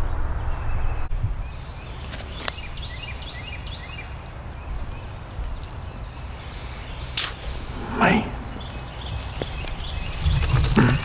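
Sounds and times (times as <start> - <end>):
birds chirping: 0.4 - 11.0
steady low rumble: 7.4 - 10.0.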